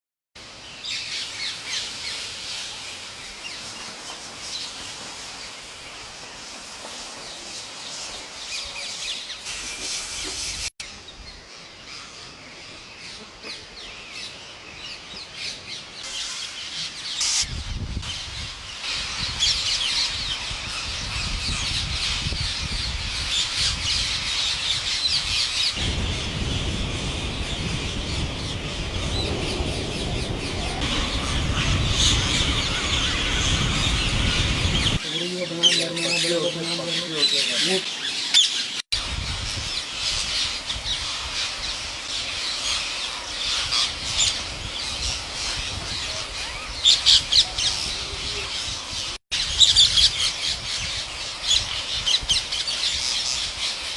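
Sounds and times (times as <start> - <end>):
flock of birds chirping: 0.4 - 53.9
low rumble: 25.8 - 35.0.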